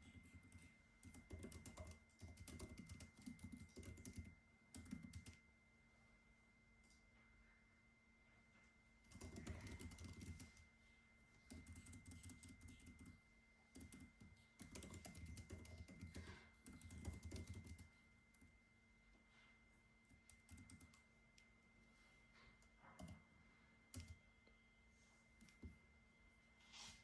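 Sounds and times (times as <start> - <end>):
faint computer keyboard typing: 0.0 - 5.5, 9.0 - 10.8, 11.4 - 18.6, 20.0 - 21.6, 22.4 - 24.6, 25.4 - 25.8.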